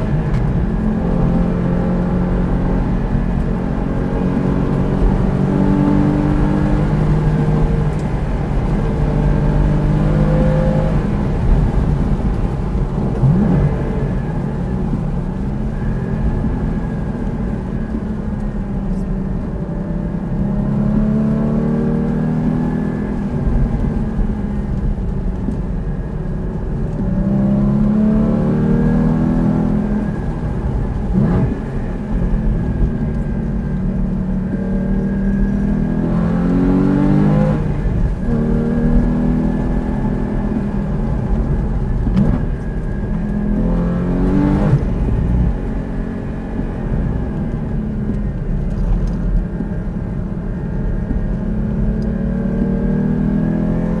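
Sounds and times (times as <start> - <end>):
sports car engine revving: 0.0 - 11.9, 18.4 - 23.4, 27.0 - 49.8, 50.5 - 54.0.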